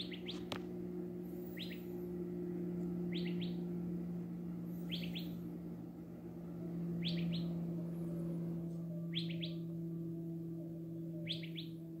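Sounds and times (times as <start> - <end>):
bird chirping: 0.0 - 0.6, 1.3 - 2.1, 2.8 - 3.8, 4.6 - 5.5, 6.9 - 12.0
steady low hum: 0.0 - 12.0.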